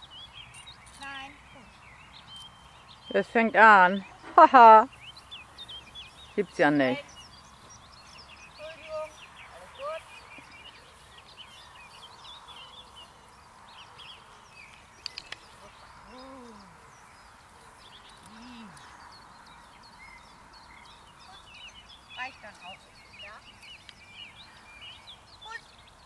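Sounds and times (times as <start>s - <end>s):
songbirds chirping: 0.0s - 26.0s
sharp clicks: 14.7s - 15.6s.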